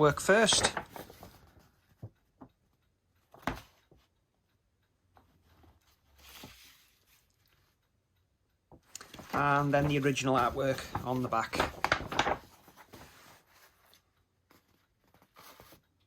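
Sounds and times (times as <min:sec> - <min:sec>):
paper rustle: 0:00.1 - 0:02.1, 0:05.8 - 0:07.7, 0:09.0 - 0:15.8
light ticks: 0:00.5 - 0:16.0
paper poster tap: 0:09.0 - 0:13.2.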